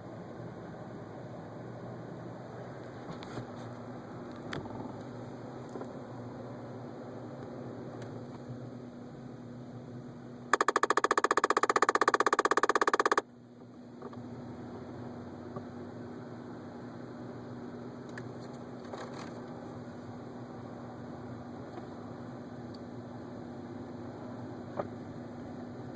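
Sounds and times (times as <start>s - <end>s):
low cabin hum: 0.0s - 25.9s
heater vent clicking rapidly: 10.6s - 13.2s.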